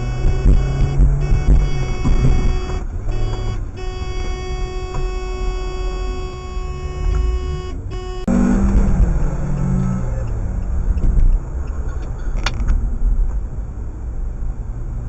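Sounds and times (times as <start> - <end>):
car horn blast: 0.0 - 10.2
engine and road rumble: 0.0 - 15.0.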